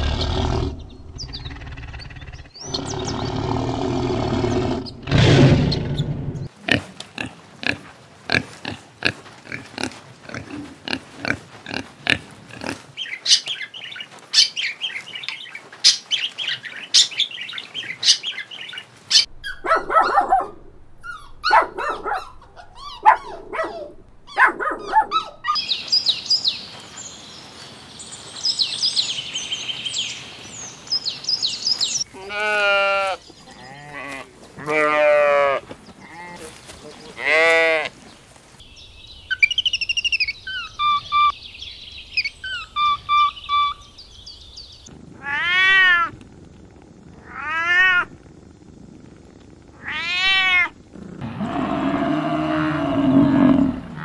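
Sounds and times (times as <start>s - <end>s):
tiger growling: 0.0s - 6.5s, 44.9s - 54.0s.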